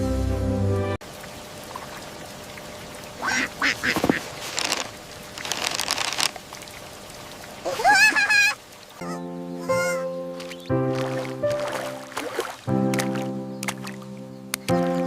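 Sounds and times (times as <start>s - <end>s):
background music: 0.0s - 1.0s, 9.0s - 15.0s
duckling quacking: 3.2s - 4.8s, 7.7s - 10.2s.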